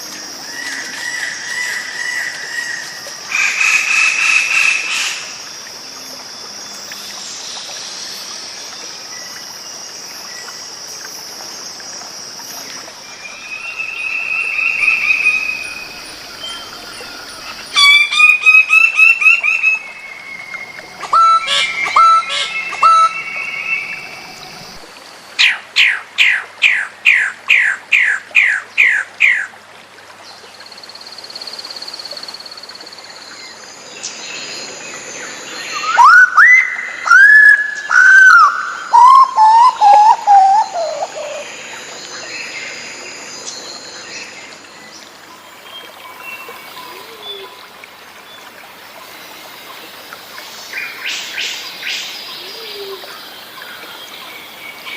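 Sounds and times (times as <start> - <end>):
faint steady hiss: 0.0 - 26.0
songbird singing: 12.6 - 26.0, 33.2 - 47.8.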